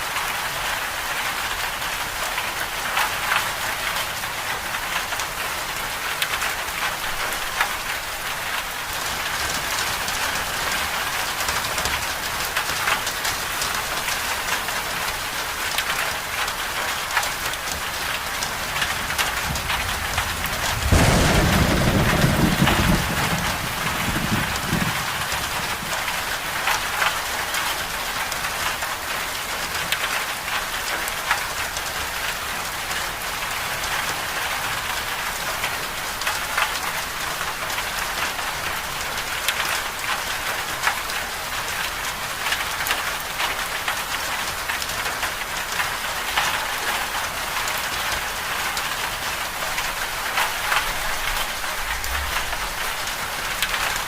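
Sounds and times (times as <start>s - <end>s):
rain falling: 0.0s - 54.0s
raindrops pattering: 0.1s - 54.0s
low roll of thunder: 19.0s - 26.1s, 51.1s - 53.2s.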